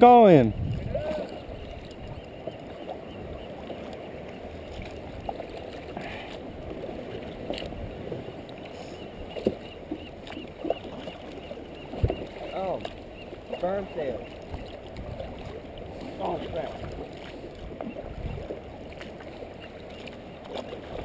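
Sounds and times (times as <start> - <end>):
water sloshing around kayak: 0.0 - 21.0
faint small splashes: 7.0 - 21.0.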